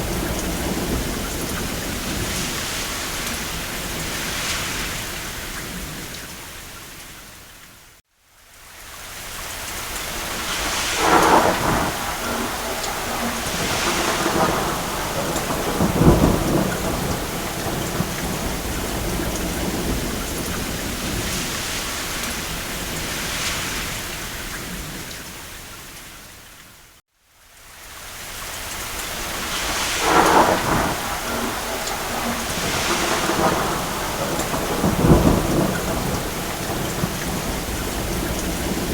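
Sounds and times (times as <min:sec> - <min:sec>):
rain on a roof: 0:00.0 - 0:38.9
distant thunder rolling: 0:10.2 - 0:23.5, 0:29.0 - 0:38.9.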